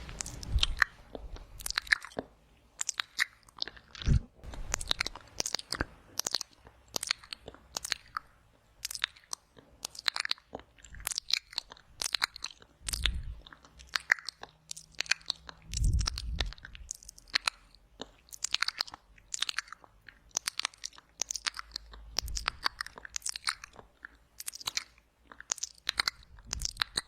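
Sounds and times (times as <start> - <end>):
wet lip smacks and tongue clicks: 0.1 - 27.0.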